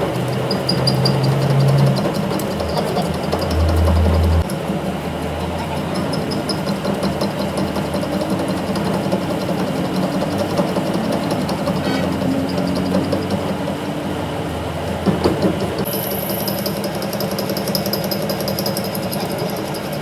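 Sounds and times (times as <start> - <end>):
sharp metal knocks: 0.0 - 4.7, 5.8 - 13.8
workshop machinery running: 0.0 - 20.0.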